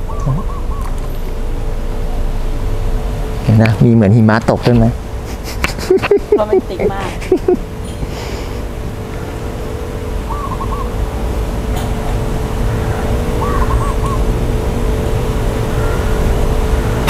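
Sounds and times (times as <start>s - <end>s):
bird warbling: 0.0s - 1.4s, 10.2s - 11.0s, 11.8s - 14.3s
constant hum: 0.0s - 17.0s
low rumble: 0.0s - 17.0s.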